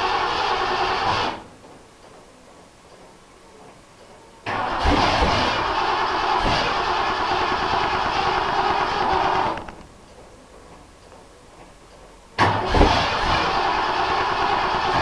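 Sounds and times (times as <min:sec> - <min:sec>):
engine starter cranking: 0:00.0 - 0:01.5, 0:04.4 - 0:09.9, 0:12.4 - 0:15.0.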